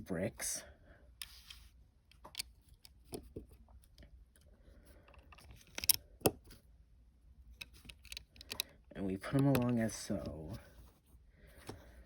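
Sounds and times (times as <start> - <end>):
plastic bricks clicking and clattering: 5.0 - 6.5, 7.5 - 10.4.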